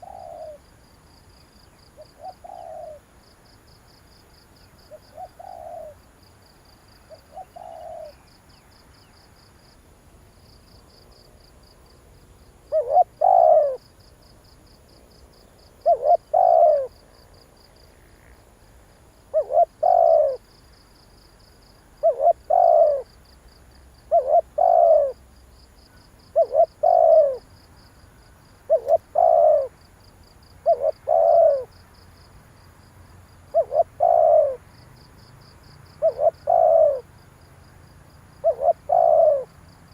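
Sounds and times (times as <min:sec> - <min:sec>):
dove cooing: 0:00.0 - 0:00.7, 0:02.0 - 0:03.1, 0:04.9 - 0:06.1, 0:07.1 - 0:08.3, 0:12.7 - 0:13.9, 0:15.8 - 0:17.0, 0:19.3 - 0:20.5, 0:21.9 - 0:23.2, 0:24.0 - 0:25.2, 0:26.0 - 0:27.5, 0:28.7 - 0:29.8, 0:30.6 - 0:31.8, 0:33.5 - 0:34.6, 0:36.0 - 0:37.1, 0:38.4 - 0:39.6.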